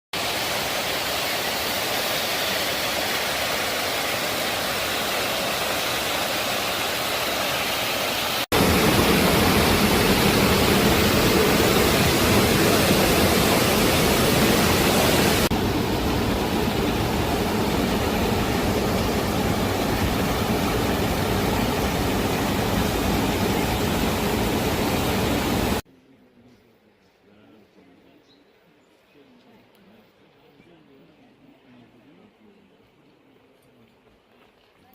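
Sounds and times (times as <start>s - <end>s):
waterfall roaring: 0.2s - 25.8s.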